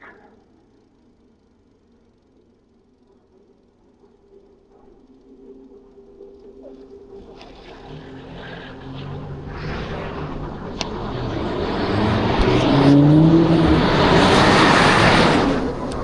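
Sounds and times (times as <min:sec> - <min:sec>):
car approaching: 0:00.0 - 0:16.0.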